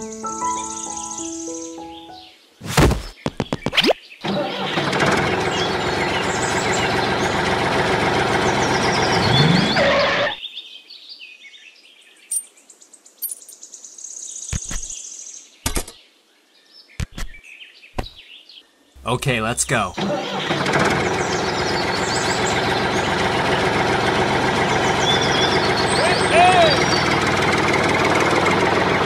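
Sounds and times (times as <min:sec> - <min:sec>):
birds chirping: 0:00.7 - 0:04.2, 0:08.3 - 0:23.6, 0:24.5 - 0:27.3.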